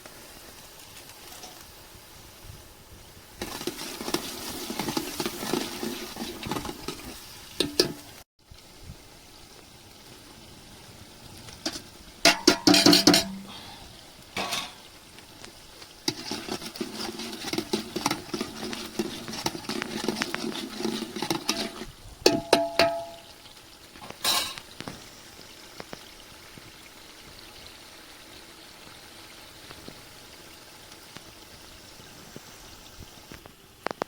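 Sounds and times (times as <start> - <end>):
utensil clanking on pot rim: 3.4 - 8.1, 11.6 - 13.6, 14.4 - 14.9, 16.1 - 23.3
utensil stirring in metal pot: 3.4 - 8.2, 11.6 - 13.6, 15.8 - 23.4.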